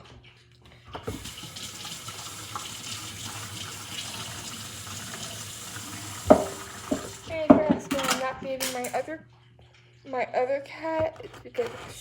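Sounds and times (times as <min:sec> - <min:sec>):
tap water running into sink: 0:01.0 - 0:09.0.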